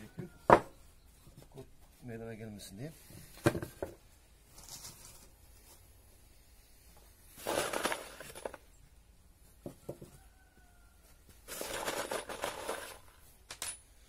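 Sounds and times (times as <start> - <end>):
clattering rustle: 7.4 - 8.7, 11.4 - 13.8.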